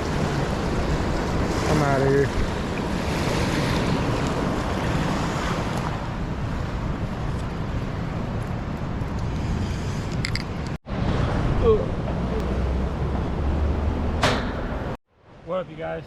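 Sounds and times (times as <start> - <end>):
river rushing: 0.0 - 7.0.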